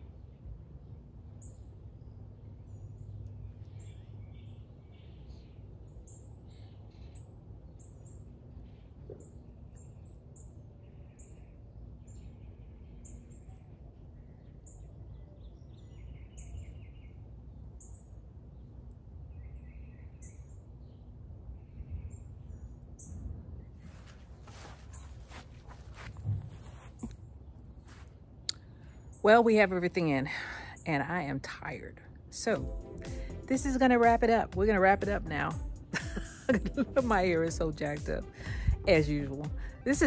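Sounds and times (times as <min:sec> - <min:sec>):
small birds chirping: 0:00.0 - 0:40.0
low background rumble: 0:25.6 - 0:40.0.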